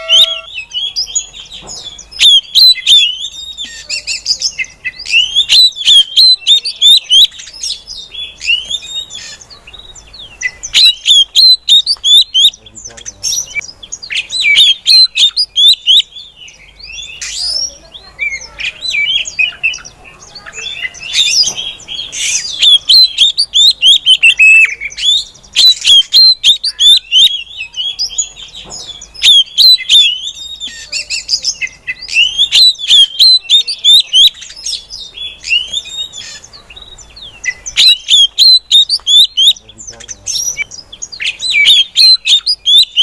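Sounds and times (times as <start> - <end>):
bird chirping and whistling: 0.0 - 19.9, 20.5 - 43.0.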